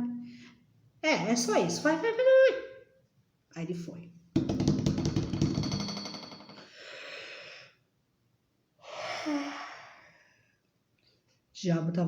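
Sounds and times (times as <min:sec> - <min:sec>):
breathy exhale: 0:06.7 - 0:07.8.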